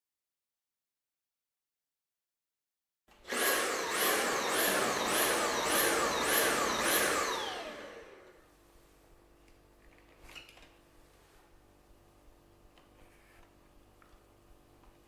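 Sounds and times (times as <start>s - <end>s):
vacuum motor pulsing whine: 3.3s - 8.4s.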